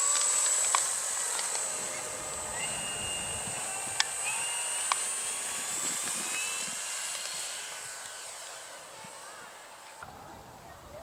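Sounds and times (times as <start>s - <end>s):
model aeroplane motor whining: 0.0s - 11.0s
sharp clicks: 3.9s - 5.1s.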